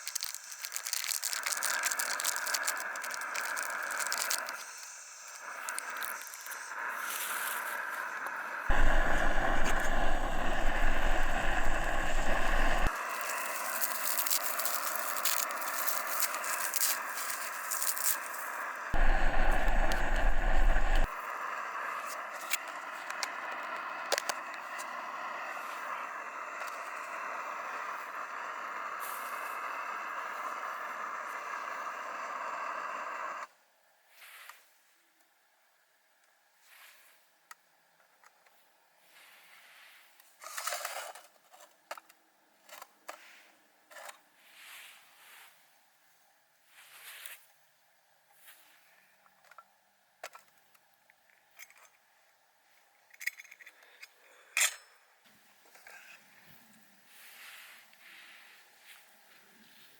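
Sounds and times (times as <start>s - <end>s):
steady rushing hiss: 4.6s - 21.1s.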